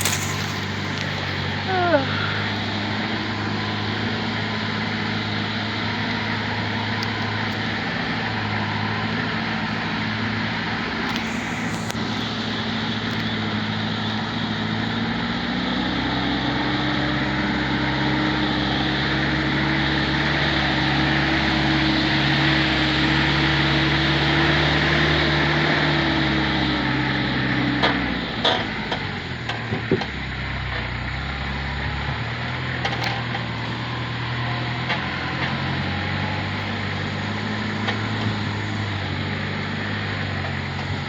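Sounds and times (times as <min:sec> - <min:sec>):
brief hiss: 0:00.0 - 0:01.3, 0:11.1 - 0:12.3
truck engine revving: 0:00.0 - 0:41.0.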